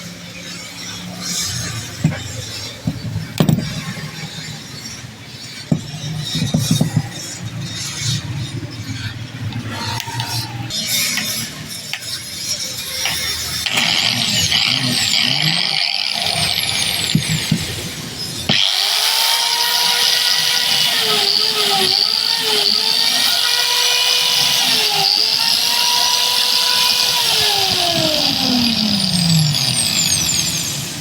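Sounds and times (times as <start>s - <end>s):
angle grinder running: 13.0s - 31.0s.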